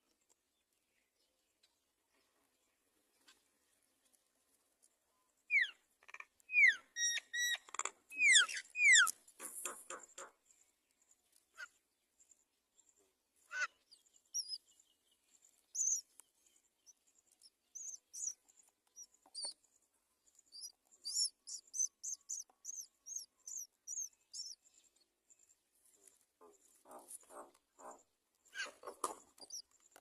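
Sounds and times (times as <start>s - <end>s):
high-pitched bird chirps: 5.5s - 9.2s, 13.5s - 14.6s, 15.7s - 16.1s, 16.8s - 19.6s, 20.4s - 24.6s, 28.5s - 29.7s.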